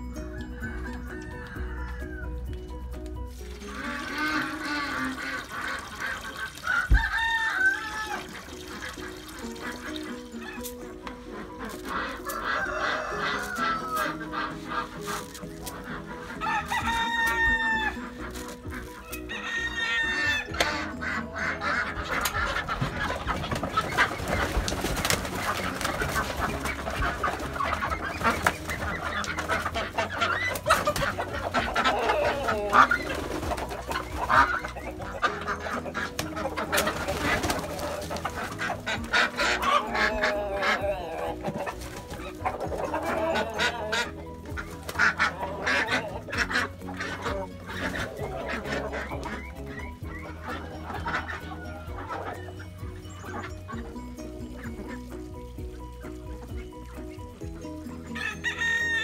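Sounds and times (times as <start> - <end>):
chickens clucking and squawking: 0.0 - 59.0
wings flapping: 22.1 - 40.8, 41.4 - 51.1.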